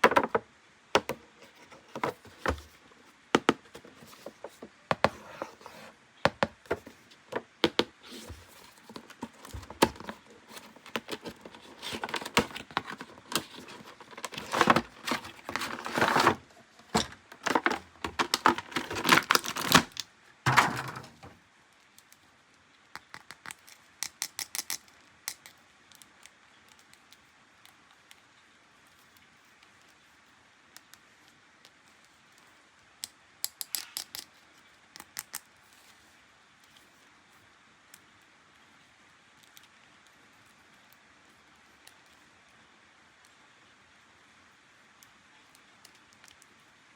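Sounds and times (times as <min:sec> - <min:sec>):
plastic parts clicking: 0:06.3 - 0:21.3, 0:23.0 - 0:27.1, 0:33.4 - 0:34.3
plastic wrap crinkling and tearing: 0:08.1 - 0:21.0.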